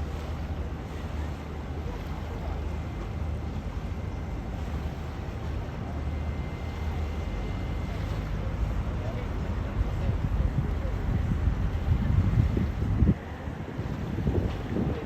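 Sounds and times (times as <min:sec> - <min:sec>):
wind buffeting microphone: 0:07.9 - 0:15.0.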